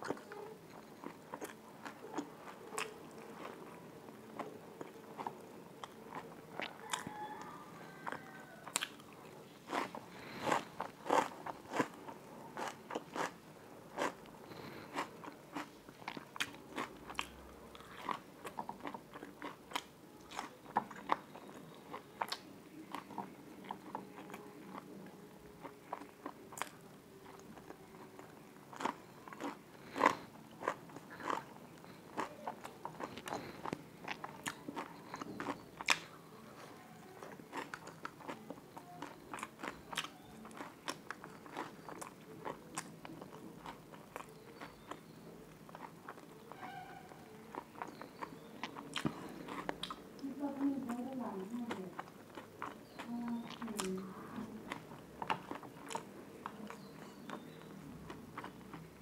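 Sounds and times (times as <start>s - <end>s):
chewing crunchy food: 0.0s - 59.0s.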